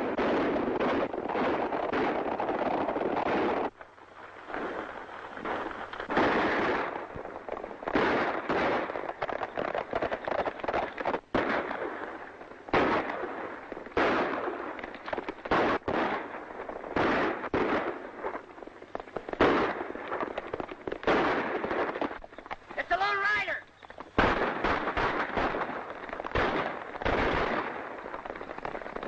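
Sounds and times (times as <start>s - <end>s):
gunshots with echo: 7.9s - 18.4s, 19.4s - 22.2s, 22.8s - 28.8s.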